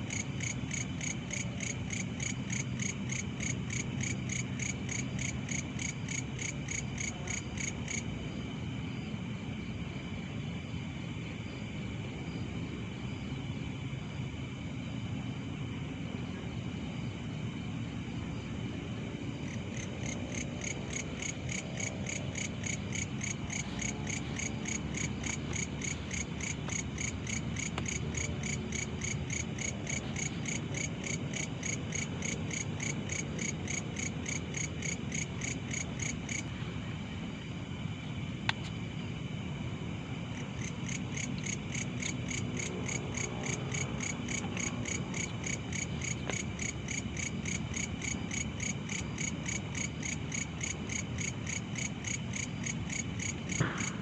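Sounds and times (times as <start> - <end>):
insect pulsing chirp: 0.0 - 8.2, 18.2 - 53.9
insects high trill: 16.1 - 54.0.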